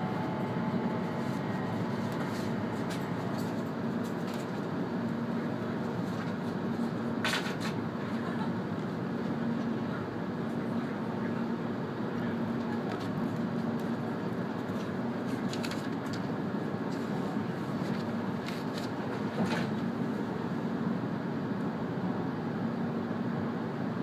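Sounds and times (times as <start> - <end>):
train cabin rumble: 0.0 - 10.0.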